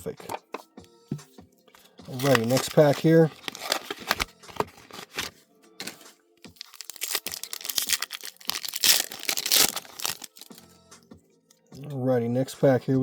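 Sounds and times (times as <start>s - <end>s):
foil wrapper tearing and crinkling: 2.1s - 6.0s, 6.6s - 10.6s.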